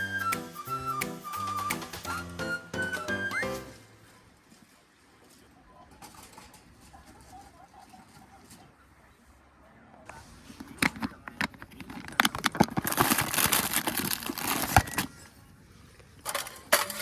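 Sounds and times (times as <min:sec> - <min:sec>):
crinkling rustle: 0:03.7 - 0:08.8, 0:10.1 - 0:17.0.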